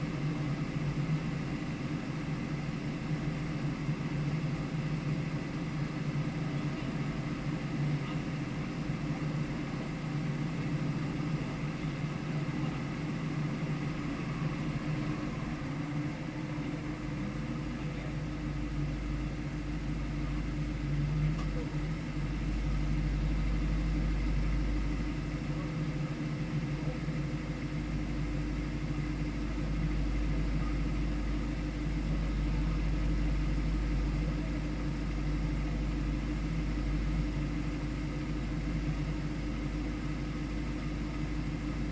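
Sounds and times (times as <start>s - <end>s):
car engine running: 0.0s - 41.9s
deep rumble: 8.0s - 40.0s.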